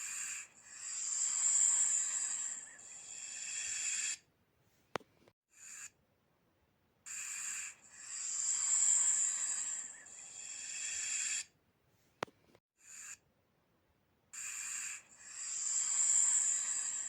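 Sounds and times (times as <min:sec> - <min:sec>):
snake hissing: 0:00.0 - 0:04.2, 0:07.1 - 0:11.5, 0:14.4 - 0:17.0.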